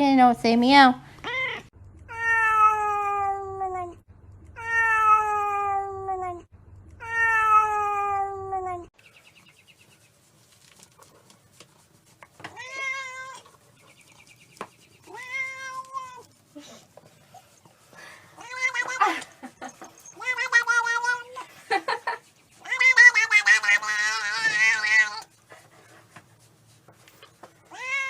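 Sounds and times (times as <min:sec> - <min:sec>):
cat meowing: 0:01.2 - 0:04.0, 0:04.6 - 0:08.9, 0:12.5 - 0:13.5, 0:15.1 - 0:16.3, 0:18.4 - 0:19.2, 0:20.0 - 0:21.4, 0:22.6 - 0:25.3, 0:27.7 - 0:28.0.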